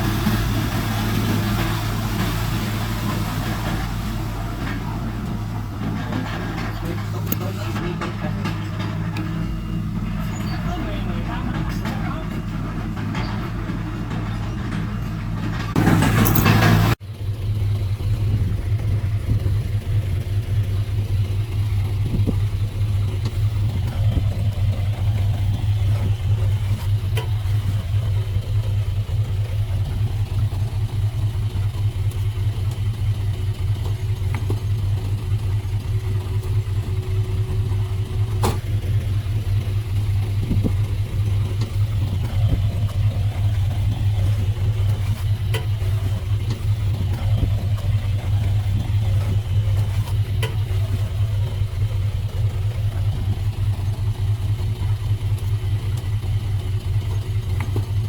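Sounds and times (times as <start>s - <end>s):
heavy diesel engine running: 0.0s - 58.0s
sharp metal clank: 11.4s - 17.0s.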